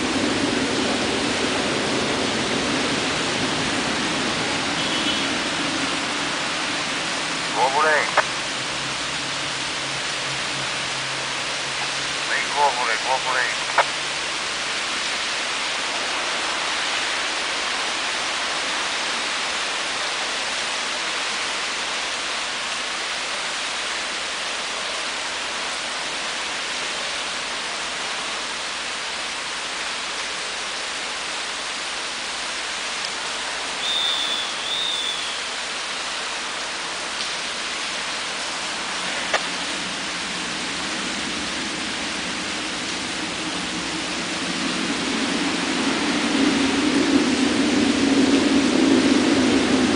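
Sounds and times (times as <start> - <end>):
steady rain: 0.0 - 49.9
two-note high chirp: 33.8 - 35.5.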